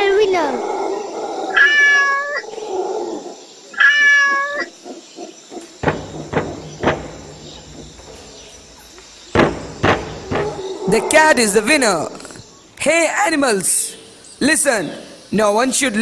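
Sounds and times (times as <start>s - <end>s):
hand drum beats: 5.8s - 8.4s, 9.4s - 10.6s.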